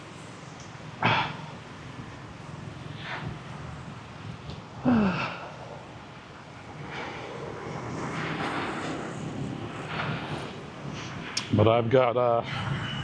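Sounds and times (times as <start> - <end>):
vehicle passing: 0.0 - 12.8
street traffic noise: 0.0 - 13.0
person sighing: 4.8 - 5.5.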